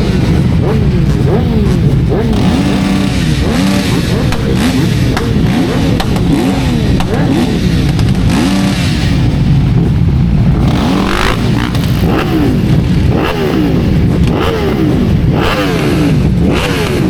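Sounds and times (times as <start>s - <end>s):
heavy wind noise: 0.0s - 17.0s
motorcycle engine revving: 0.0s - 17.0s.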